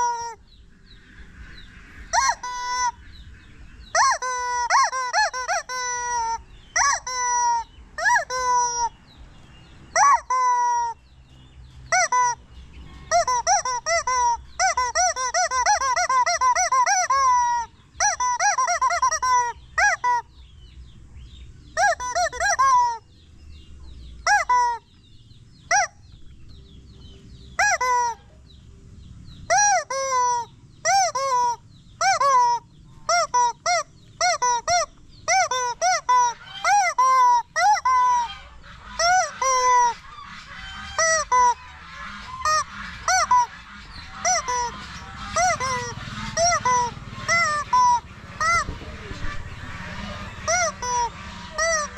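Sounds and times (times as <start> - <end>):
rubber chicken squealing: 0.0 - 0.4, 2.1 - 3.0, 3.9 - 8.9, 9.9 - 11.0, 11.9 - 12.4, 13.1 - 20.3, 21.8 - 23.0, 24.2 - 24.8, 25.7 - 26.0, 27.6 - 28.2, 29.5 - 51.9.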